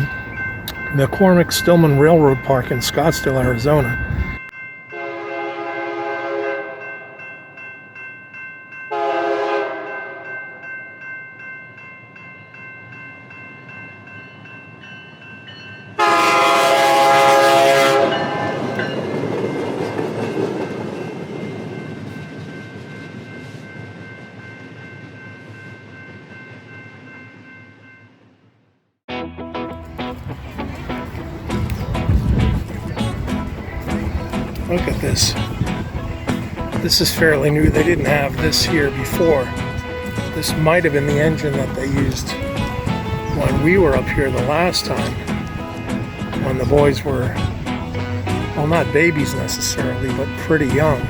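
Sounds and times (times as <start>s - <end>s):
train horn blasts: 4.9s - 6.9s, 8.9s - 10.3s, 16.0s - 18.8s, 37.8s - 51.0s
train running noise: 16.0s - 26.8s, 29.8s - 51.0s.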